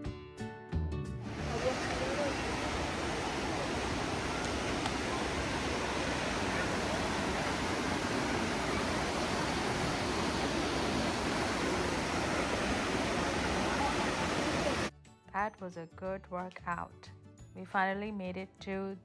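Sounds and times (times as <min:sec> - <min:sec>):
waterfall rushing: 0:01.2 - 0:14.9.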